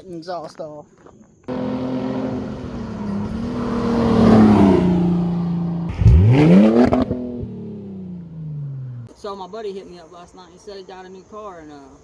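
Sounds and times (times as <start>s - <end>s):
car engine revving: 1.5s - 9.1s.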